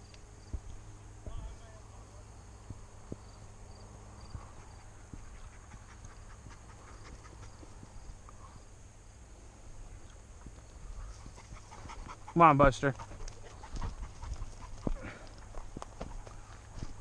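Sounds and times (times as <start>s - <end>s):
footfalls rustling through dry grass: 13.4s - 17.0s.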